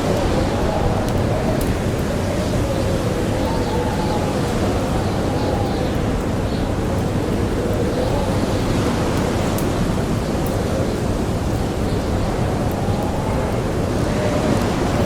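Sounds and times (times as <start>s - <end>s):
blizzard wind howling: 0.0s - 15.0s
campfire crackles: 0.0s - 15.0s.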